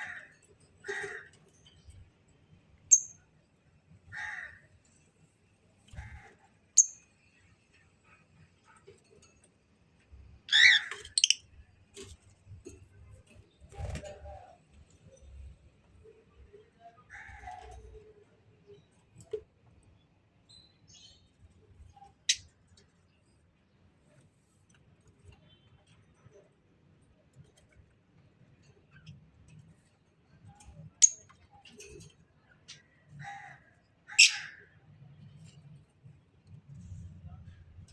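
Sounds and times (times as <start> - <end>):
caged birds calling: 10.4 - 11.6, 30.4 - 35.7.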